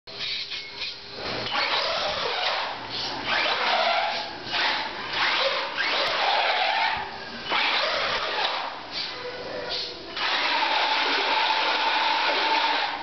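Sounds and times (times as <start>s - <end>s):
electric motor whining in bursts: 10.2s - 13.0s.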